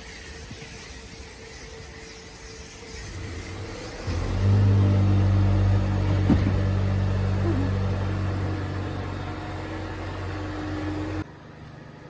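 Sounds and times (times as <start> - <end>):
car engine hum: 2.9 - 11.2.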